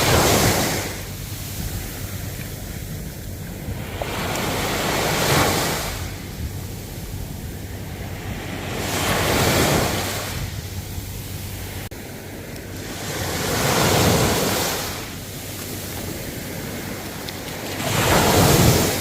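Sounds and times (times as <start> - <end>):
low rumble of surf: 0.0 - 19.0
ocean waves washing ashore: 0.0 - 19.0.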